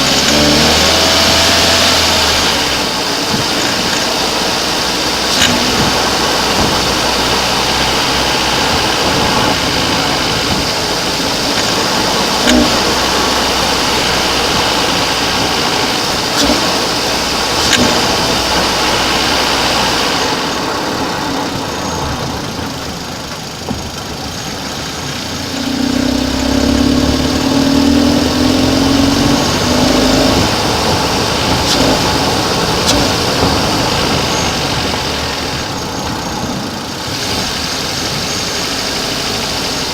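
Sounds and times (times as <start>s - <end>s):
car engine idling: 0.0s - 39.9s
sharp clicks: 11.4s - 20.6s, 23.6s - 36.7s.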